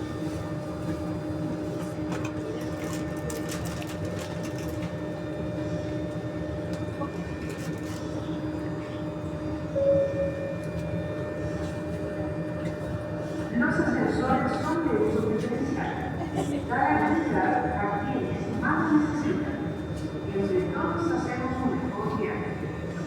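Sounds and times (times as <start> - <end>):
metro train rumble and hum: 0.0 - 23.0
brief loud tone: 9.8 - 11.2.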